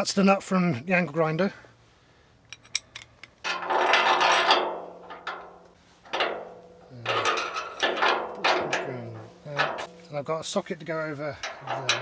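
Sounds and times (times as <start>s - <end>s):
metal hardware clicks: 2.5s - 10.2s, 11.4s - 12.0s
metal hardware scraping and rattling: 2.5s - 12.0s.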